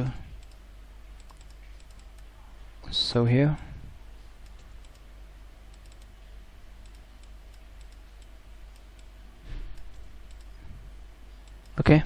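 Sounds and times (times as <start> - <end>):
steady low hum: 0.0 - 12.0
keyboard and mouse clicks: 0.4 - 0.6, 1.2 - 2.3, 4.4 - 5.1, 5.7 - 6.1, 6.8 - 9.1, 9.7 - 10.6.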